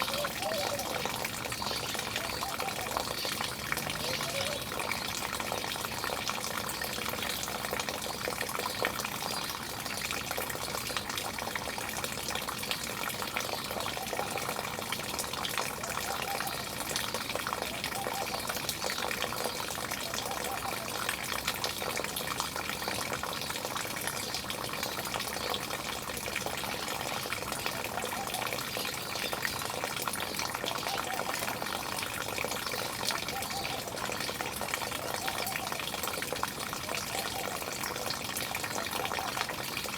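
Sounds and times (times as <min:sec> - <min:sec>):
running water splashing: 0:00.0 - 0:11.8.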